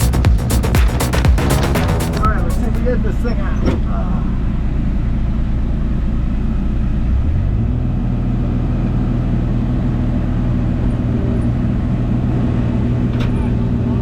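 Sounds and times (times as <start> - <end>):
excavator diesel engine revving: 0.0 - 3.0.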